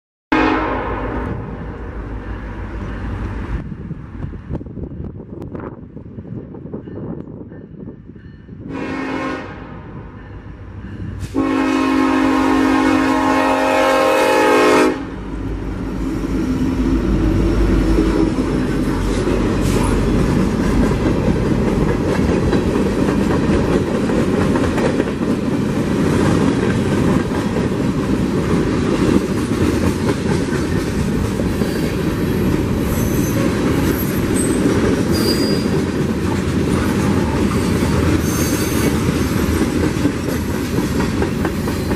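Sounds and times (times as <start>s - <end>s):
train air horn blasts: 0.3s - 1.4s, 8.6s - 10.5s, 11.1s - 15.3s
locomotives rumbling past: 9.7s - 41.9s
faint high wheel squeals: 32.9s - 35.7s.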